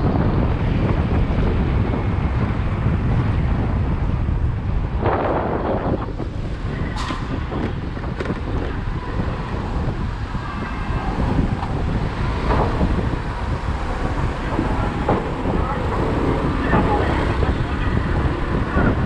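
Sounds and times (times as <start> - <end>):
road and traffic noise: 0.0 - 19.0
wind buffeting microphone: 0.0 - 19.0.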